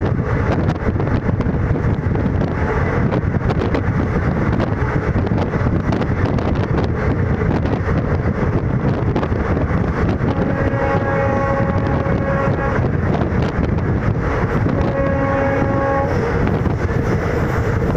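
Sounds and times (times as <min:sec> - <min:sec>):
train rumbling and rattling: 0:00.0 - 0:17.9
multi-tone train horn: 0:10.1 - 0:13.2, 0:14.6 - 0:17.2.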